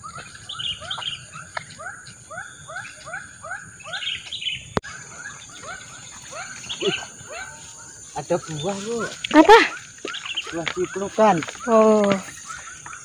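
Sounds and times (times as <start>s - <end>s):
bird chirping: 0.0s - 13.0s
high insect drone: 4.9s - 13.0s.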